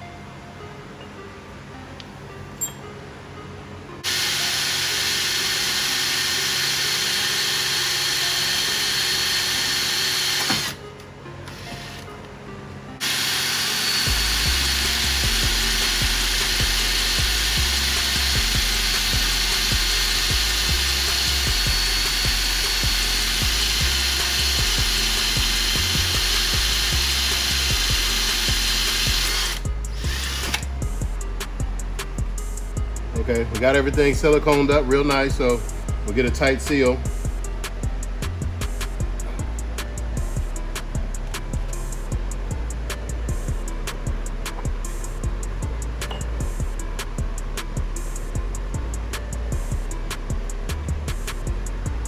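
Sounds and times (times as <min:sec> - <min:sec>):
power tool running: 0:04.0 - 0:12.1, 0:13.0 - 0:52.0
background music with bass: 0:10.5 - 0:52.0.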